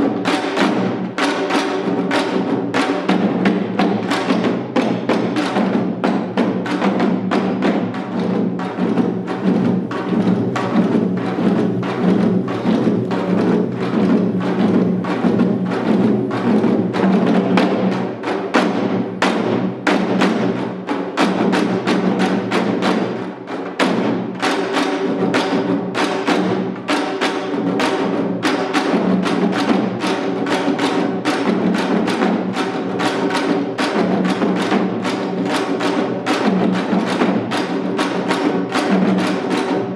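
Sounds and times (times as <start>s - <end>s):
hourglass drum fast strokes: 8.9s - 17.5s.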